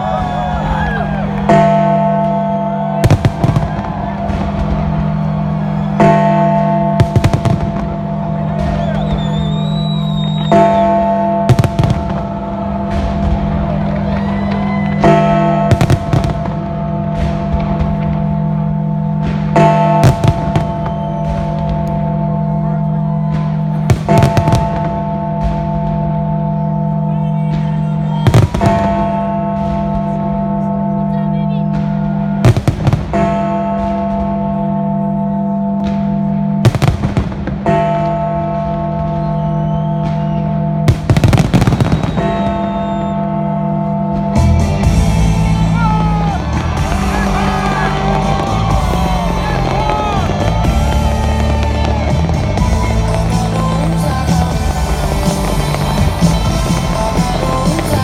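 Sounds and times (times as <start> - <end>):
firework bangs: 0.0 - 30.9, 31.6 - 35.2, 35.8 - 58.0
sustained music: 0.0 - 58.0
whistling firework shell: 7.0 - 12.6, 20.0 - 22.1, 27.8 - 29.2, 39.0 - 43.8
music holding a sustained chord: 9.4 - 14.0, 28.3 - 37.4, 43.5 - 58.0.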